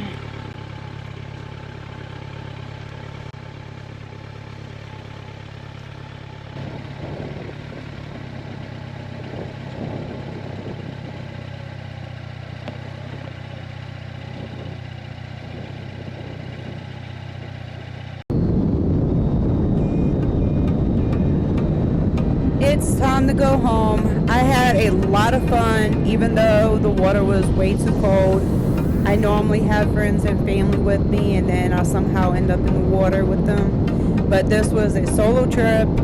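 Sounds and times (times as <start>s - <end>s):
motorcycle engine idling: 0.0s - 18.2s, 19.9s - 36.0s
rough rushing wind noise: 6.6s - 11.6s, 14.2s - 17.6s, 18.3s - 36.0s.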